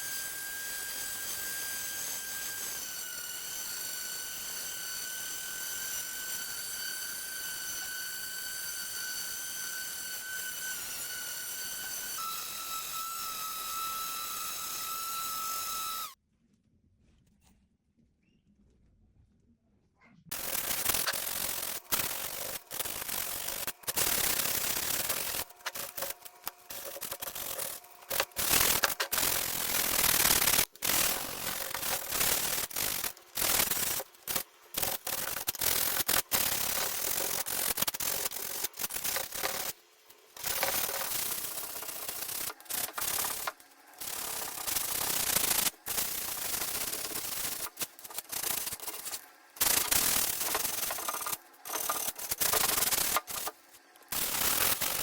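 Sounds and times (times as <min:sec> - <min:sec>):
sanding wood: 0:20.3 - 0:55.0.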